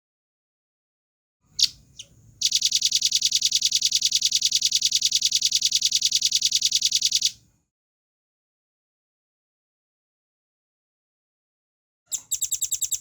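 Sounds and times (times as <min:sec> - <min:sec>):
bird singing high trill: 0:01.6 - 0:07.4, 0:12.1 - 0:13.0.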